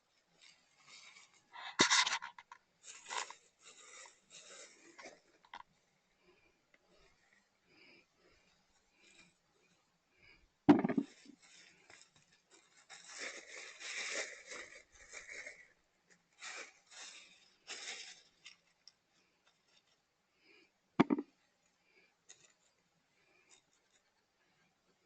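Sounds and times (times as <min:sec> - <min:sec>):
dry rustling and scraping: 0:00.4 - 0:05.6, 0:11.0 - 0:15.8, 0:16.4 - 0:18.9.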